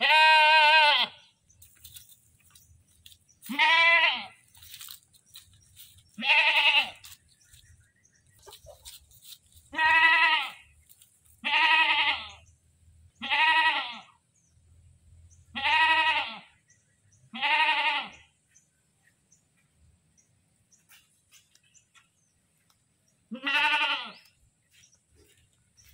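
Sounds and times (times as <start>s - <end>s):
goat bleating loudly: 0.0s - 1.2s, 3.4s - 4.4s, 6.2s - 7.1s, 9.7s - 10.7s, 11.4s - 12.4s, 13.2s - 14.1s, 15.5s - 16.5s, 17.3s - 18.3s, 23.3s - 24.3s.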